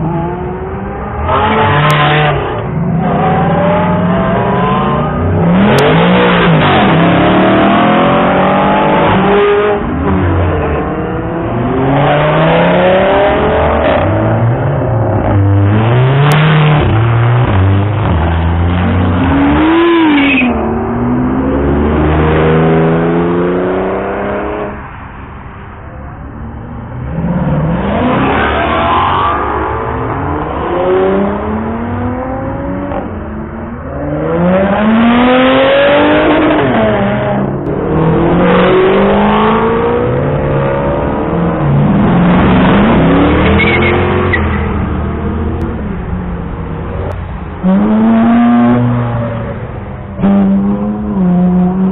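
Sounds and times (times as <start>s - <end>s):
sports car engines revving: 0.0s - 51.9s.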